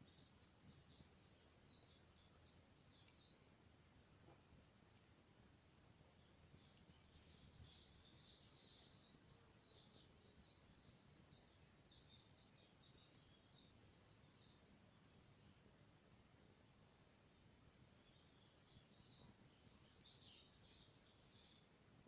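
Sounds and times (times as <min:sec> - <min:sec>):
songbird singing: 0:00.0 - 0:22.0.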